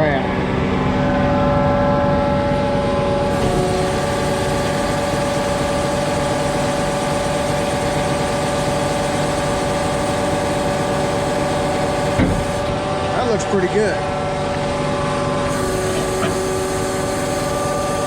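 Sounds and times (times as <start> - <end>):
pump engine whining: 0.0 - 18.0
hydraulic hiss: 3.2 - 12.7, 15.5 - 18.0.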